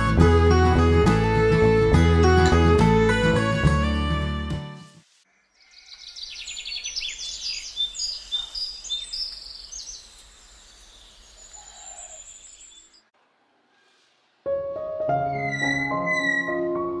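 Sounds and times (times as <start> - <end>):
small birds chirping and singing: 5.3 - 13.1.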